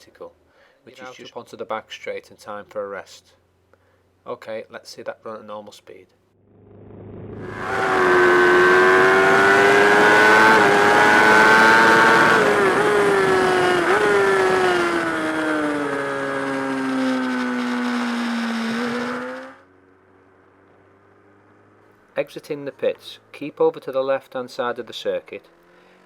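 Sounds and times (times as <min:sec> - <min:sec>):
racing motorcycle engine high revs: 0:06.4 - 0:19.9, 0:25.5 - 0:26.0.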